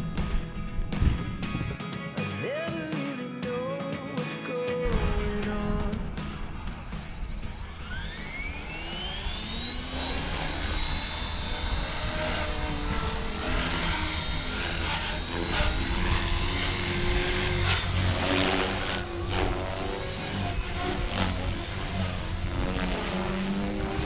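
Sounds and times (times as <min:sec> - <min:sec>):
rc helicopter rotor whine: 0:06.2 - 0:24.0.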